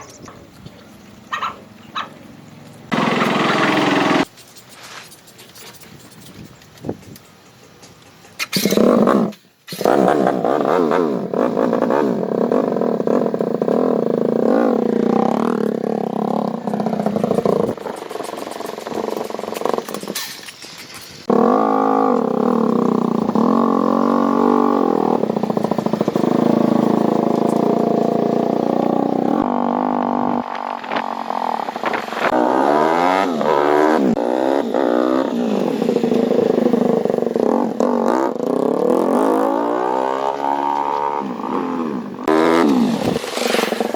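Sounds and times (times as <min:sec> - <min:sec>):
motorcycle engine idling and revving: 0:01.2 - 0:04.4, 0:06.9 - 0:43.9.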